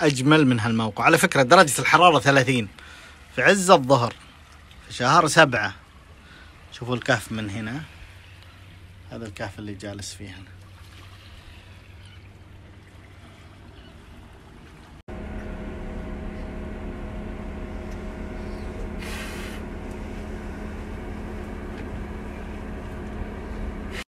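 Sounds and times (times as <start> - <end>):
faint low hum: 15.1 - 24.0
vehicle engine running: 15.1 - 24.0.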